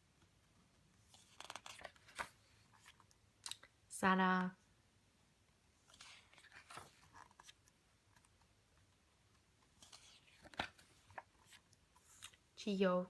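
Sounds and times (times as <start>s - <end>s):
photobook pages rustling: 0.7s - 3.7s, 5.8s - 12.6s.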